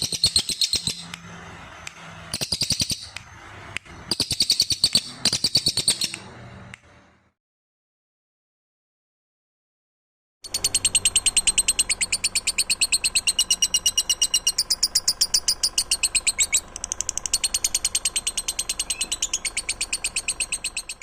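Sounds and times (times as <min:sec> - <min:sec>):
songbird trilling: 0:00.0 - 0:01.2, 0:02.4 - 0:03.2, 0:04.1 - 0:06.2, 0:10.5 - 0:21.0.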